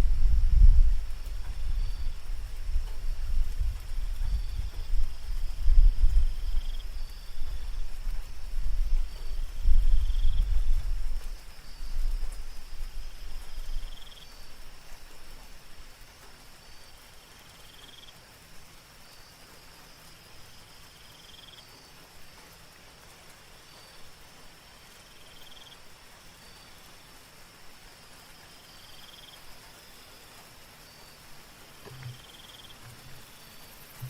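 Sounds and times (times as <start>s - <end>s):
insect short chirp: 0.0s - 34.0s
soft steady rain: 0.0s - 34.0s
insects high trill: 28.3s - 34.0s
low croaks: 31.8s - 34.0s.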